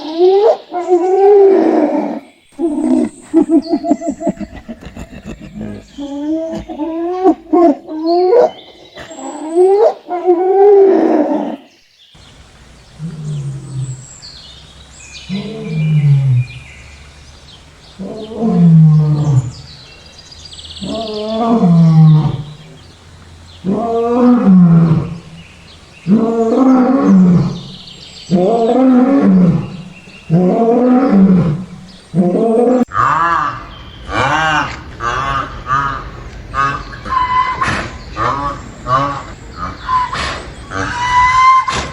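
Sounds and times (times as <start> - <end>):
animal call: 0.0 - 41.9
lion roaring: 12.8 - 35.1.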